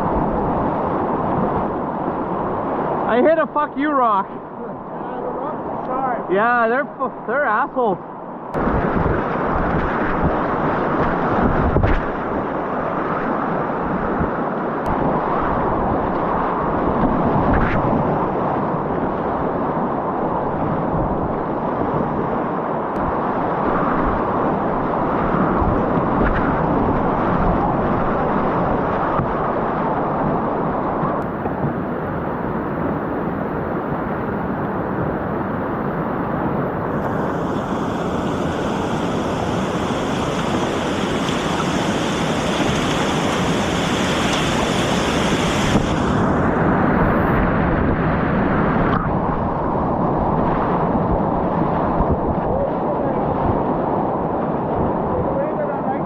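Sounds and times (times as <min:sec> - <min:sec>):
wind noise on microphone: 0:00.0 - 0:56.0
rushing river whitewater: 0:36.9 - 0:47.4.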